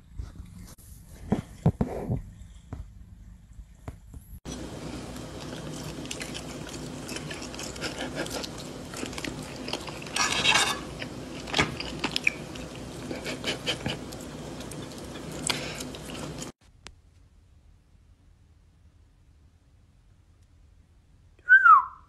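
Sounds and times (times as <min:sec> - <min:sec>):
steady low hum: 0:00.0 - 0:21.3
chewing and crunching food: 0:04.5 - 0:16.6.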